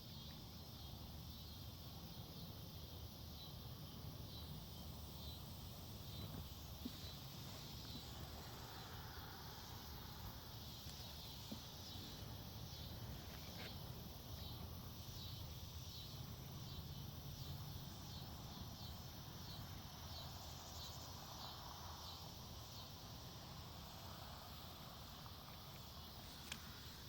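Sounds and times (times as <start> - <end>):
insect chirping: 0.0 - 27.0
small click: 26.4 - 26.7.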